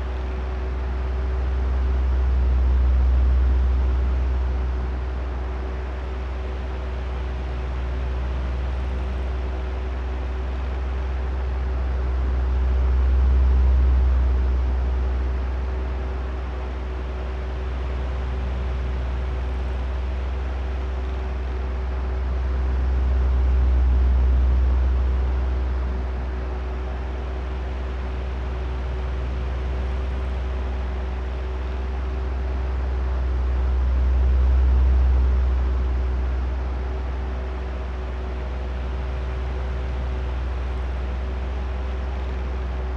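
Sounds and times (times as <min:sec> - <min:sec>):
oscillating electric fan running: 0:00.0 - 0:42.9.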